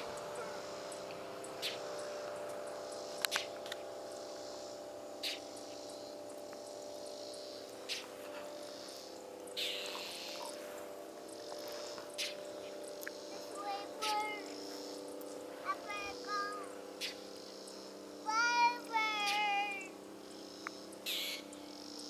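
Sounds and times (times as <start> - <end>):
insects chirring: 0.0 - 22.0
low steady hum: 0.0 - 22.0.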